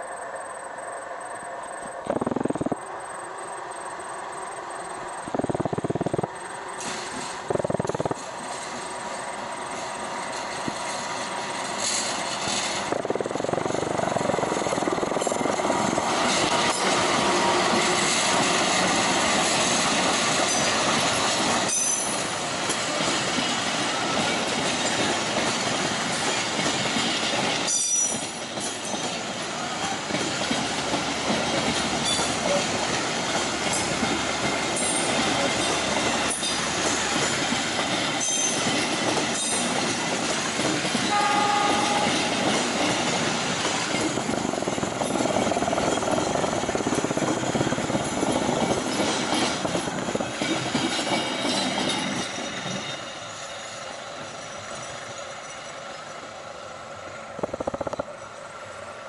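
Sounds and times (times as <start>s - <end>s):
train wheels rumbling: 0.0s - 59.0s
clickety-clack of rail joints: 5.3s - 59.0s
squealing wheels: 6.4s - 56.4s.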